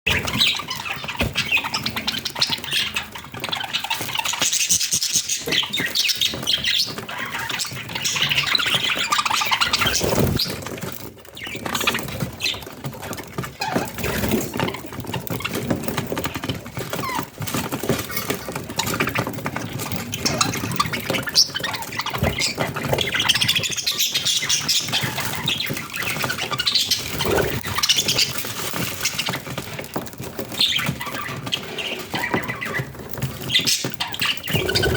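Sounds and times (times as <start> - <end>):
budgerigars chattering: 26.6 - 28.3, 34.2 - 34.9.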